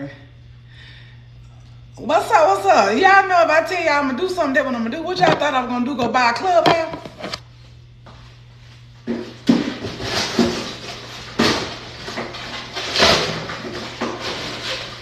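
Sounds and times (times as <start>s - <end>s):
steady low hum: 0.0s - 14.4s
household objects knocking and rattling: 5.2s - 7.4s.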